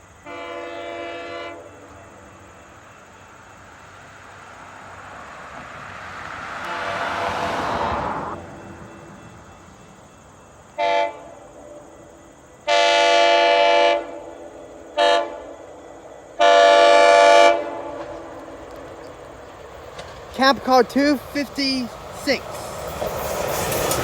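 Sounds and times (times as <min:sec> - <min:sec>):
train horn blasts: 0:00.2 - 0:02.2, 0:06.6 - 0:08.3, 0:10.7 - 0:11.8, 0:12.6 - 0:15.7, 0:16.4 - 0:18.4.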